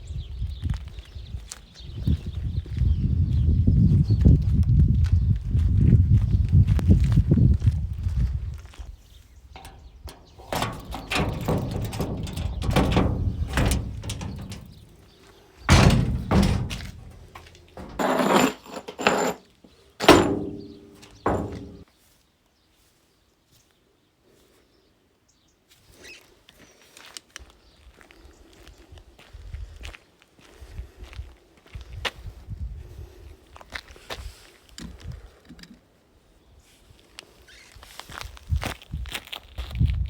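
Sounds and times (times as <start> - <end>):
door squeak: 9.6 - 15.0, 15.7 - 19.4, 20.0 - 21.8
door thunks and knocks: 9.6 - 15.0, 15.7 - 19.4, 20.0 - 21.8.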